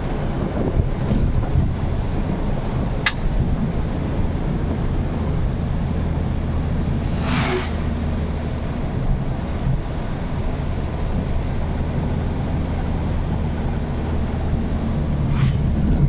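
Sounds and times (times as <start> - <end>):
motorcycle engine and road drone: 0.0 - 16.0
brief hiss: 7.0 - 8.2.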